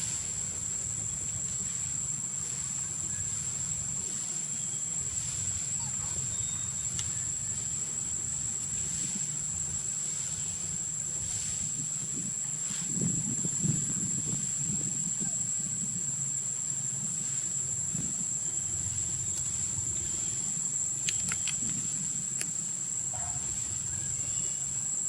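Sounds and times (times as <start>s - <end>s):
low background rumble: 0.0s - 24.8s
high-pitched insect drone: 0.0s - 25.0s.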